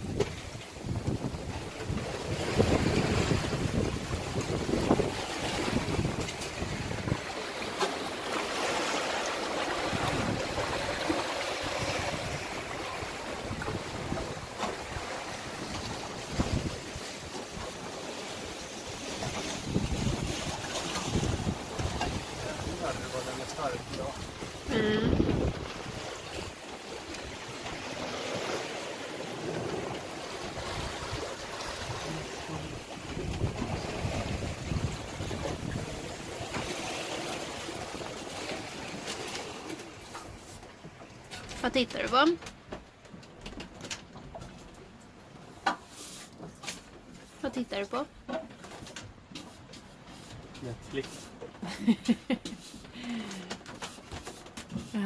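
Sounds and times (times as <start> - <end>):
wind noise: 0.0 - 7.3, 9.8 - 11.0, 11.6 - 17.1, 19.2 - 23.0, 23.6 - 26.5, 30.6 - 36.7
water rushing along boat hull: 0.0 - 55.0.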